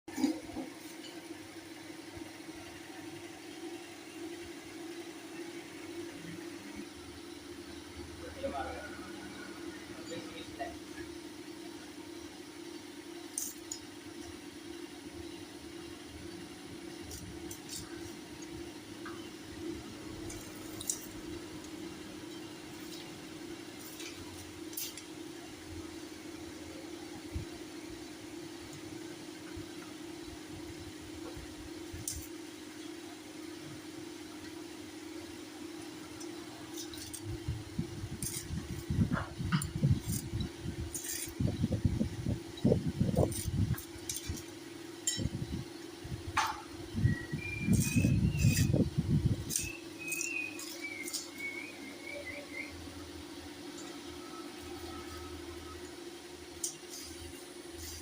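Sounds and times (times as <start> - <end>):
steady mechanical hum: 0.1 - 58.0.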